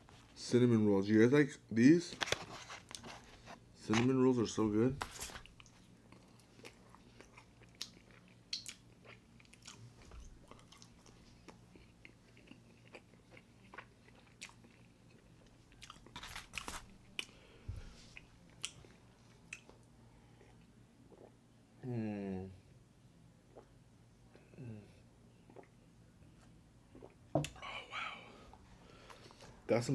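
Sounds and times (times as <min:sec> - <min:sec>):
faint low hum: 0:00.0 - 0:29.9
man chewing soft food: 0:05.2 - 0:21.4, 0:23.5 - 0:27.6
mouth clicks and smacks: 0:07.8 - 0:08.8.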